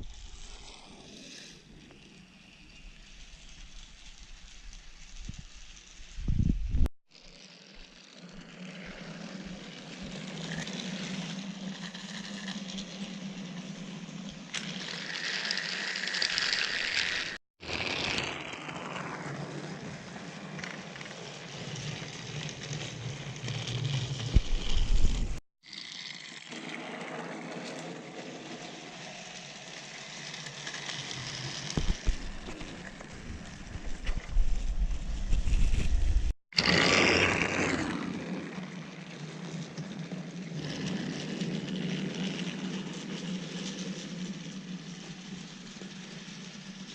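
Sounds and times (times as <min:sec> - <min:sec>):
toy train motor whirring: 0:00.0 - 0:34.8, 0:38.5 - 0:46.9
wheels rattling on track: 0:36.6 - 0:46.9.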